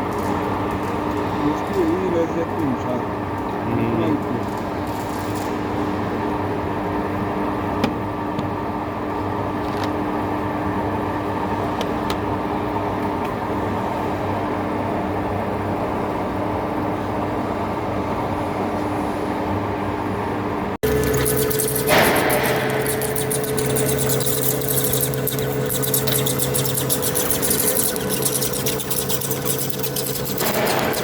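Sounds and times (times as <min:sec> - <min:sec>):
lathe running: 0:20.8 - 0:31.0.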